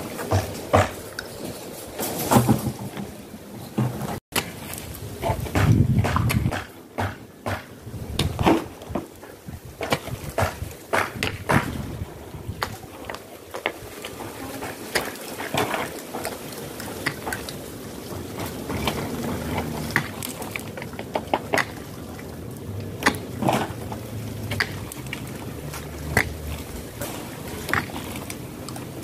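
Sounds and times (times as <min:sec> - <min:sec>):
plastic pipes clicking and knocking: 0:23.0 - 0:29.0.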